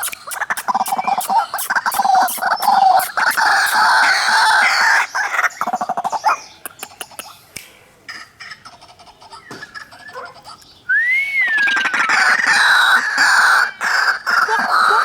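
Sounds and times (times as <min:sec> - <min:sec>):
waterhen croaking chatter: 0:11.6 - 0:15.0.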